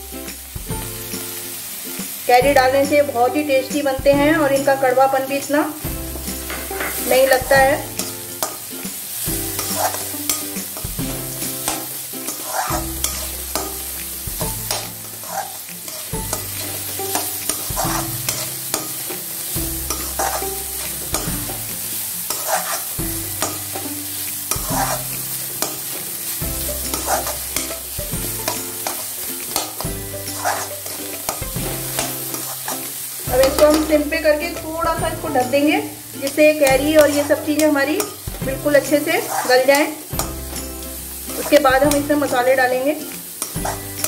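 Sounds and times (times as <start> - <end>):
food sizzling in hot oil: 0.0 - 44.0
spatula scraping pan: 6.1 - 35.6, 36.2 - 42.4, 43.3 - 44.0.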